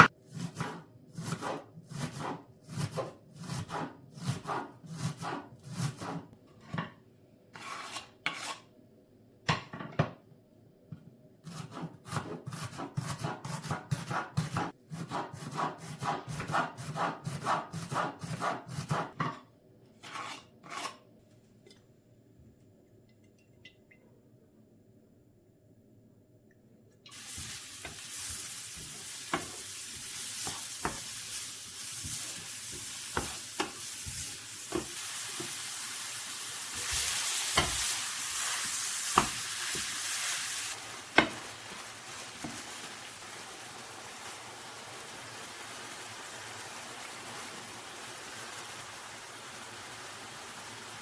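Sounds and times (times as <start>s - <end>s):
food sizzling in hot oil: 27.1s - 51.0s.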